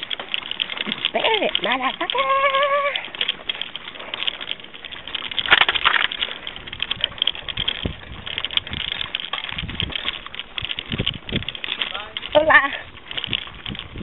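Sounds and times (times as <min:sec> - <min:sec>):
bicycle rattling on rough road: 0:00.0 - 0:14.0
wind rumble on microphone: 0:05.1 - 0:14.0.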